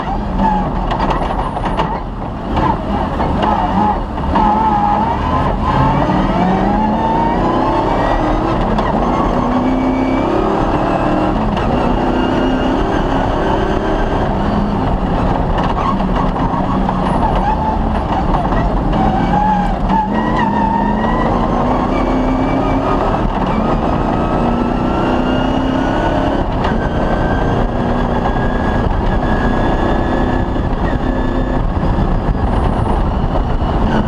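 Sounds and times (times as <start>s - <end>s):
knocks and rattles: 0.7s - 4.5s, 15.1s - 20.5s
car engine revving hard: 2.4s - 34.0s.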